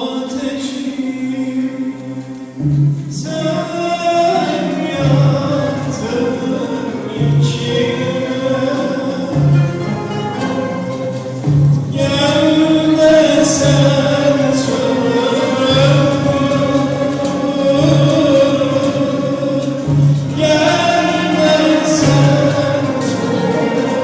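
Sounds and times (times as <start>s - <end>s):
instrumental ensemble: 0.3s - 24.0s
low drum beat: 5.0s - 24.0s
person singing long gliding notes: 11.9s - 24.0s.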